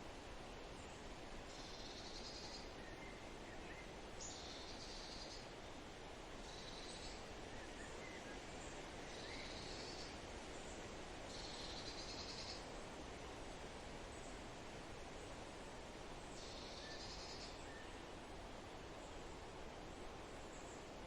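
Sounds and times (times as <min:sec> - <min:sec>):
background hiss: 0:00.0 - 0:21.0
faint bird chirps: 0:01.5 - 0:05.4, 0:06.5 - 0:08.4, 0:11.3 - 0:12.7, 0:16.3 - 0:18.0.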